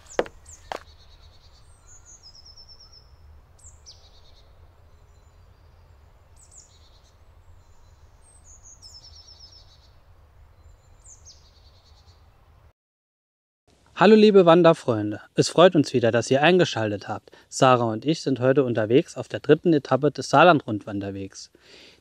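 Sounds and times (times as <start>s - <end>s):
songbird singing: 0.0s - 12.7s.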